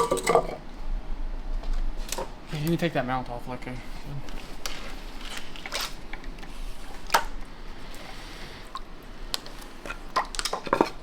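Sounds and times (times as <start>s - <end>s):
metal parts and tools clinking: 0.0s - 0.6s.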